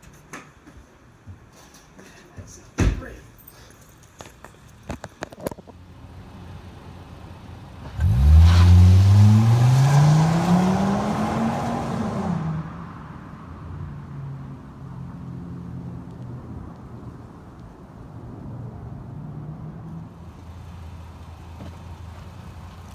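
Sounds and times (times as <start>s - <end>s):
car engine revving and idling: 6.2s - 12.9s.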